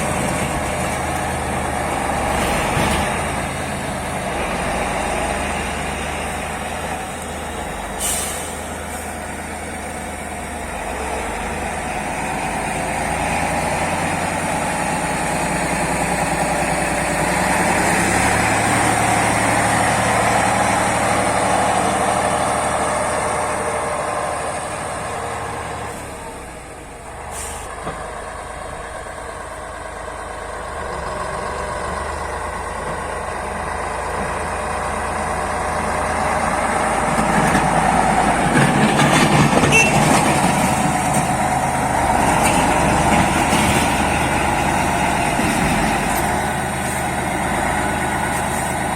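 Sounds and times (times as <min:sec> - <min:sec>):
diesel tractor engine running: 0:00.0 - 0:48.9
short sharp hisses: 0:08.0 - 0:09.2, 0:27.3 - 0:27.7.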